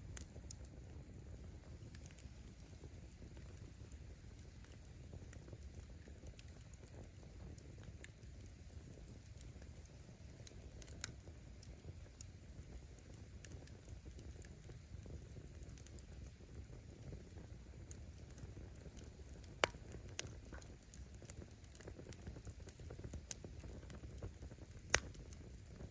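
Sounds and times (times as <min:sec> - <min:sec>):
firewood crackling and popping: 0:00.0 - 0:25.9
low campfire rumble: 0:00.0 - 0:25.9.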